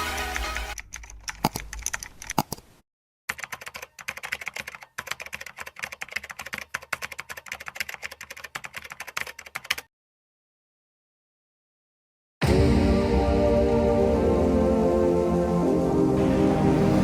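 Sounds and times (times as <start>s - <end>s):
rapid typing on keyboard: 0.2s - 2.6s, 3.3s - 9.9s.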